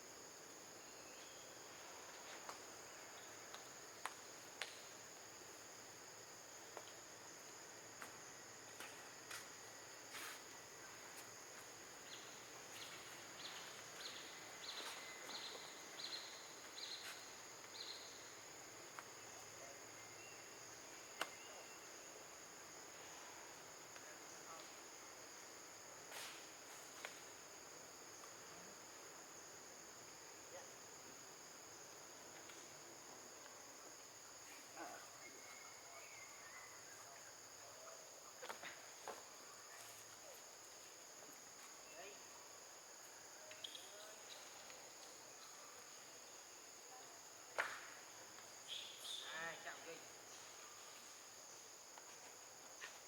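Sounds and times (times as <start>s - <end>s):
night insects droning: 0.0s - 53.0s
faint sharp clicks: 21.2s - 21.4s.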